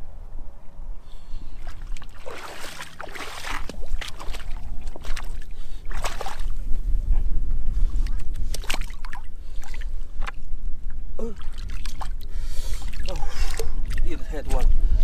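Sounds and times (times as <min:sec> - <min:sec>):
wind rumbling on microphone: 0:00.0 - 0:15.0
splashing steps in water: 0:01.6 - 0:06.7, 0:08.0 - 0:10.4.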